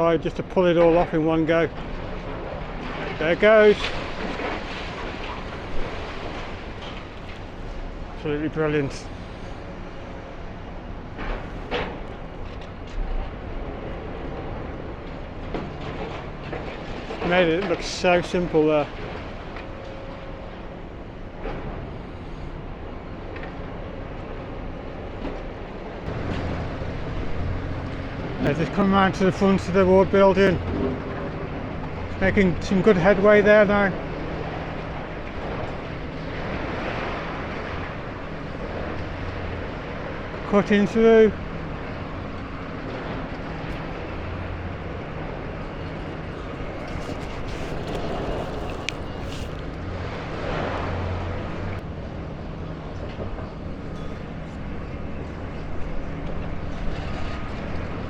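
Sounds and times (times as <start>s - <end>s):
steady rushing noise: 0.0s - 58.0s
excavator diesel engine under load: 26.1s - 32.6s.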